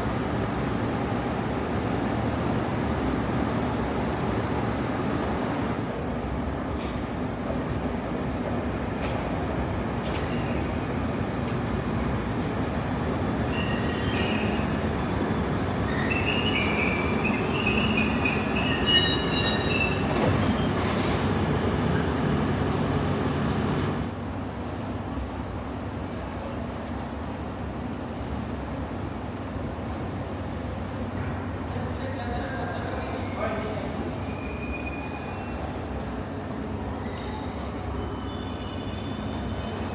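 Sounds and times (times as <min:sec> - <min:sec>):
train rumbling: 0:04.4 - 0:26.0
wheels squealing on rails: 0:10.2 - 0:11.5, 0:13.4 - 0:22.4, 0:33.0 - 0:36.0, 0:36.8 - 0:39.9.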